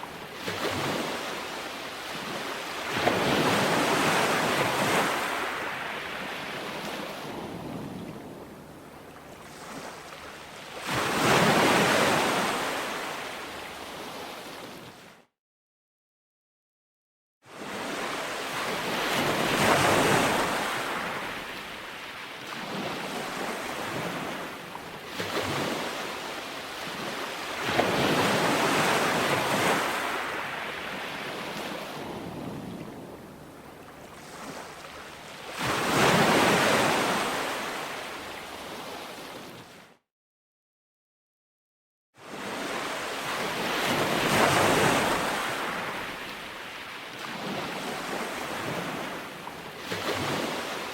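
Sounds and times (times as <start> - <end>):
ocean waves breaking: 0.0 - 15.2, 17.5 - 40.0, 42.2 - 50.9.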